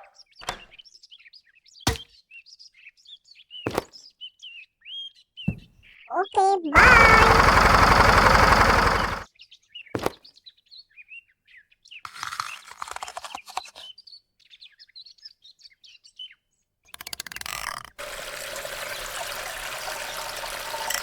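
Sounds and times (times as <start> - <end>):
brief bursts of noise: 6.8 - 9.2.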